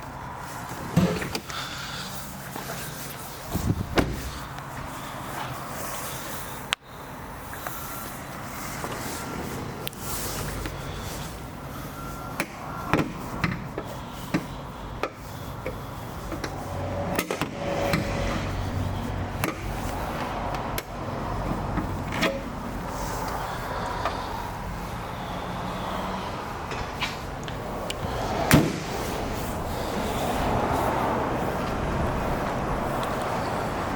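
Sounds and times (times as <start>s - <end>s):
outdoor background hum: 0.0s - 33.9s
car door fittings clicking: 1.0s - 1.6s, 3.5s - 4.6s
car door knock: 3.6s - 4.4s.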